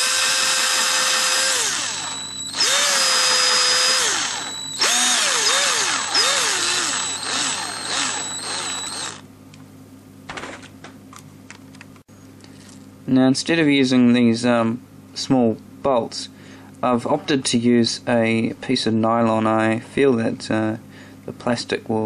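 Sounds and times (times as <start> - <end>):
small electric drill running: 0.0 - 9.2.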